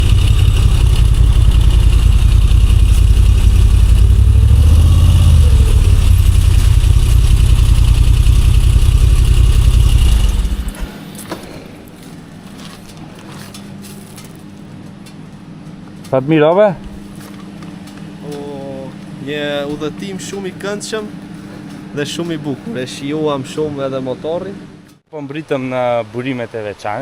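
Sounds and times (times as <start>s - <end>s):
motorcycle engine rumbling: 0.0s - 14.8s, 16.8s - 22.8s.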